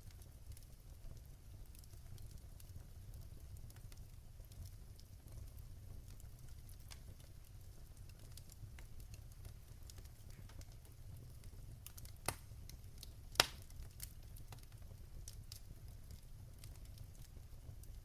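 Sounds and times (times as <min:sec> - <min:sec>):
fire crackling in fireplace: 0:00.0 - 0:18.0
low steady rumble of fire: 0:00.0 - 0:18.0
loud fire pops: 0:11.4 - 0:16.9.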